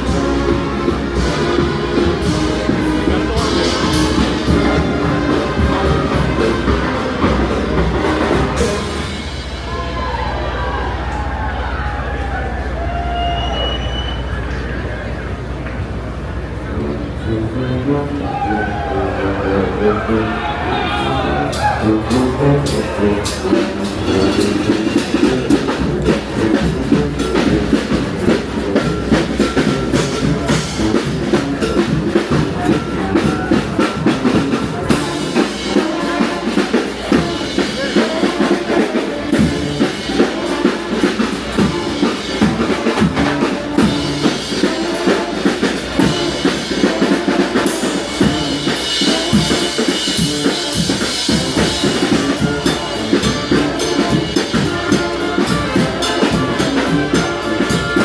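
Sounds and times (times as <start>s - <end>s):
snare drum beat: 0.0s - 9.1s, 21.6s - 58.0s
bass drum beat: 0.0s - 10.8s, 20.8s - 36.0s, 48.1s - 58.0s
brass band playing: 0.0s - 14.4s, 15.0s - 58.0s.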